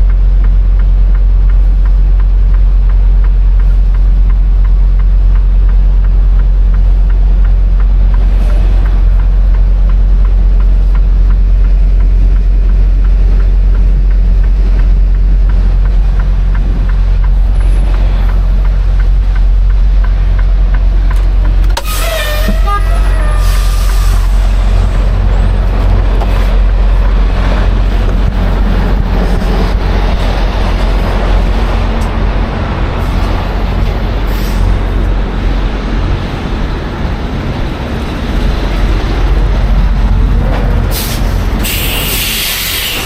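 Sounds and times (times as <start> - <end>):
faint regular ticking: 0.0 - 21.8
diesel truck engine droning: 0.0 - 43.0.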